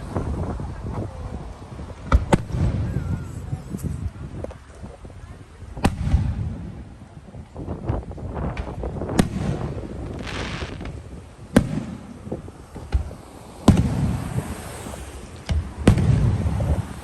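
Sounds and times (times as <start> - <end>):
low rumbling booms: 7.6 - 14.5
crackling hiss: 8.4 - 17.0
sharp firework bangs: 8.5 - 14.2, 15.5 - 17.0.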